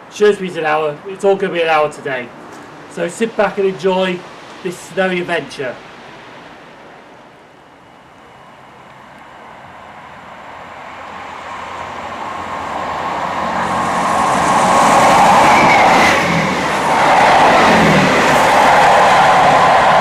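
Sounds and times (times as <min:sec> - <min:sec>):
diesel train approaching: 0:00.0 - 0:20.0.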